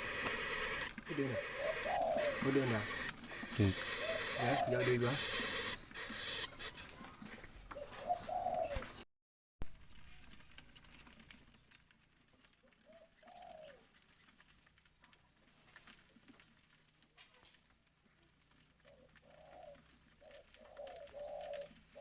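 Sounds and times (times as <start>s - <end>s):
dove cooing: 0.0s - 9.0s, 12.8s - 13.9s, 18.8s - 22.0s.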